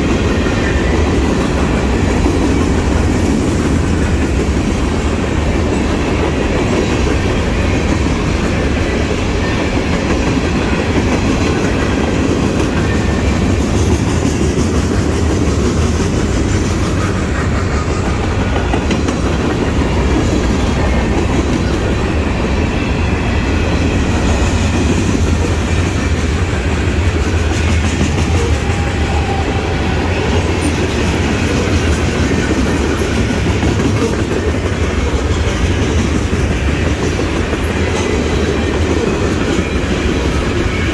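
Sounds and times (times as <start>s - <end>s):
freight train wheels clattering: 0.0s - 40.9s.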